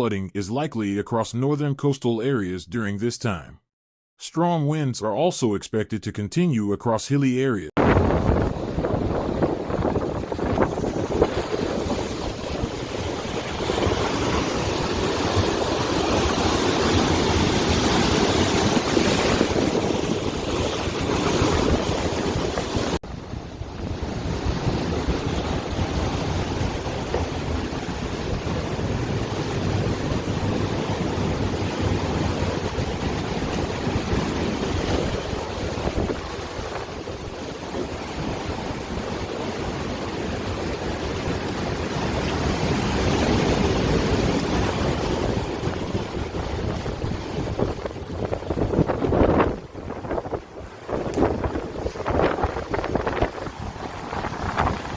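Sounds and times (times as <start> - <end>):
wind buffeting microphone: 7.8 - 39.1, 42.8 - 54.9
rough surf rushing water: 7.8 - 54.9.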